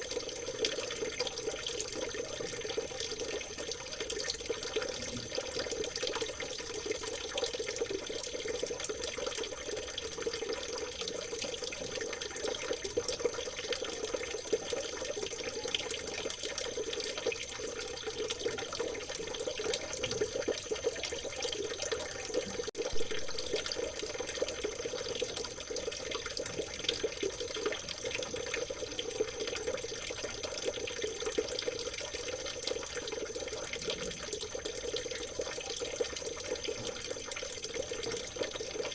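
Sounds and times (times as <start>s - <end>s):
stream water trickling: 0.0s - 38.9s.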